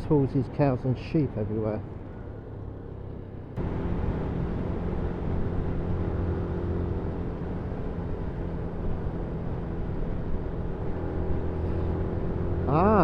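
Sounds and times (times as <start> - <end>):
motorcycle engine running: 3.6 - 13.0.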